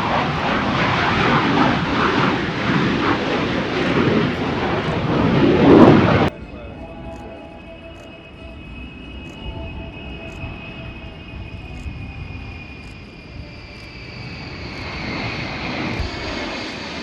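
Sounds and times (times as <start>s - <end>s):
jet aircraft engine whine: 0.0s - 17.0s
low rumble: 4.8s - 16.7s.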